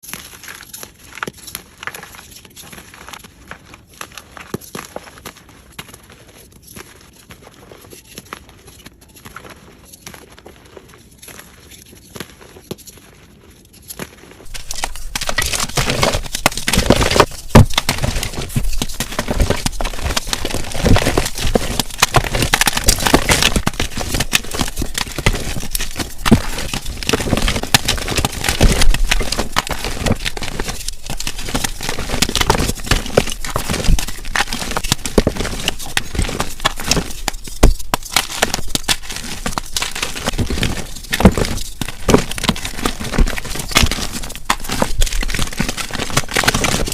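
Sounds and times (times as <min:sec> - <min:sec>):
chalk being crushed: 0:14.4 - 0:46.9.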